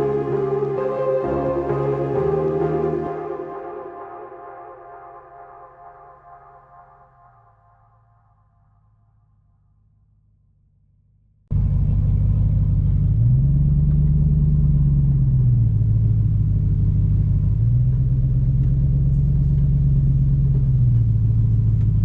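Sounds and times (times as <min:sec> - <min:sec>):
vehicle engine droning: 0:11.5 - 0:22.0.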